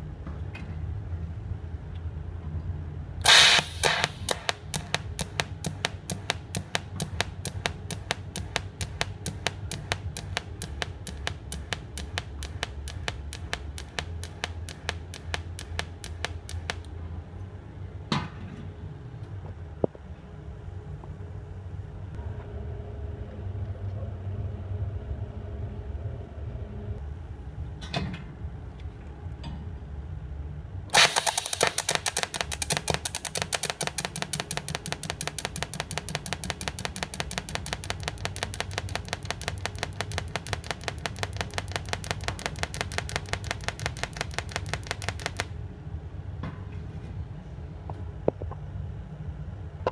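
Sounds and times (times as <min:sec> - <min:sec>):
welder low hum: 0:03.2 - 0:16.9, 0:30.9 - 0:45.5
welding arc crackling pulses: 0:03.2 - 0:16.9, 0:30.9 - 0:45.5.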